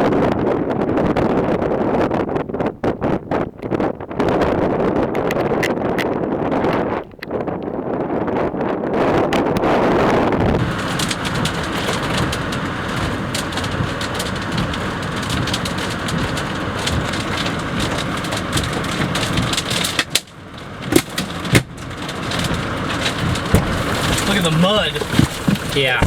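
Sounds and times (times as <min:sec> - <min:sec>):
rain pattering on a vehicle: 0:10.4 - 0:26.0
loud knocks: 0:10.6 - 0:26.0.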